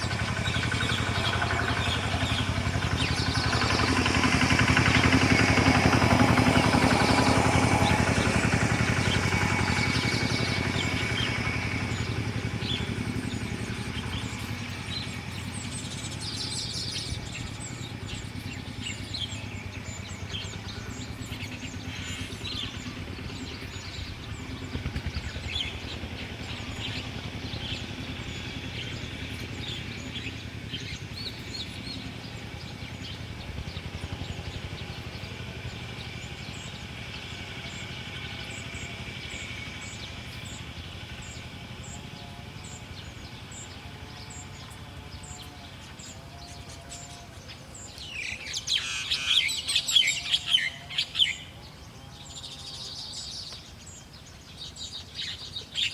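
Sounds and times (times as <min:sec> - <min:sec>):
small birds chirping: 0:00.0 - 0:55.9
steady low hum: 0:00.0 - 0:55.9.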